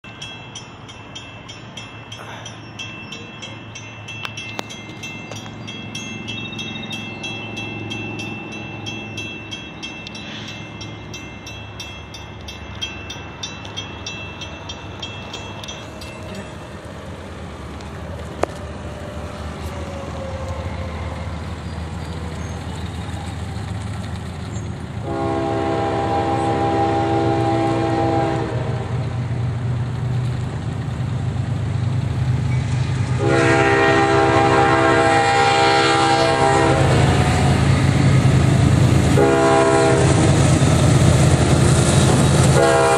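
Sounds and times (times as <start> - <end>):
locomotive rumble: 0.0 - 42.9
train air horn chord: 25.0 - 28.8, 33.2 - 37.2, 39.2 - 40.4, 42.5 - 42.9.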